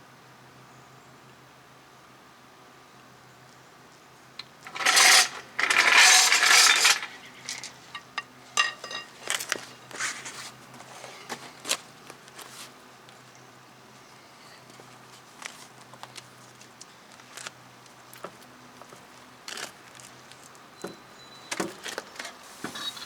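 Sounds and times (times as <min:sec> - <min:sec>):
metal tools clattering: 0:04.4 - 0:10.2.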